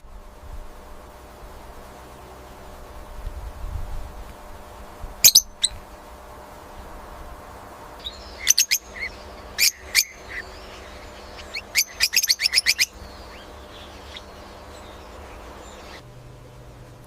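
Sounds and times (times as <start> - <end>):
low background hum: 0.0 - 17.0
birds chirping: 5.2 - 6.0, 6.8 - 17.0.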